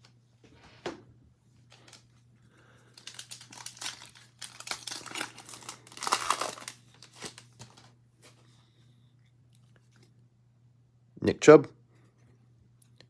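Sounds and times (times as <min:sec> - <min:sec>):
wrapper torn and crinkled: 0:02.9 - 0:07.9.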